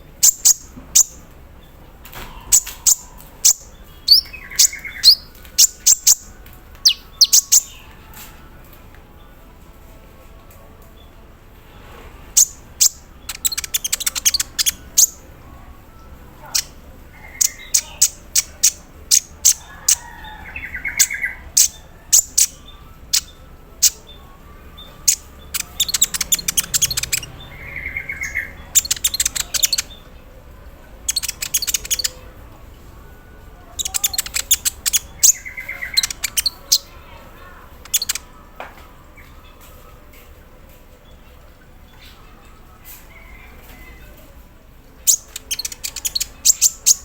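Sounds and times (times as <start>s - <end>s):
sunbird chips and ticking rattles: 12.4s - 15.2s, 25.0s - 27.3s, 31.1s - 32.2s, 33.8s - 36.9s, 37.8s - 38.2s, 45.0s - 47.0s.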